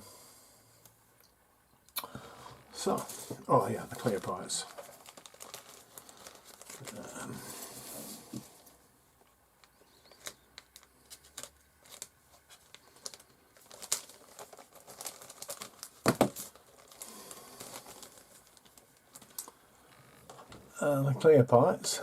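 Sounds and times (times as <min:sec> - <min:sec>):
plastic bag crinkling: 0:02.8 - 0:08.6, 0:09.6 - 0:20.5.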